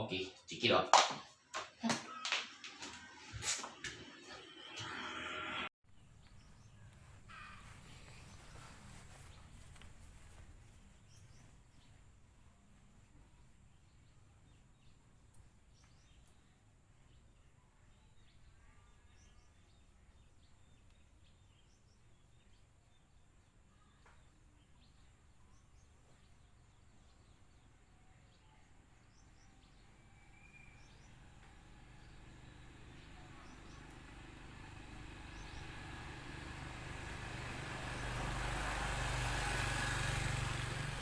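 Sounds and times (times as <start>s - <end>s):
faint outdoor hum: 0.0s - 41.0s
faint bird chirps: 13.3s - 32.1s.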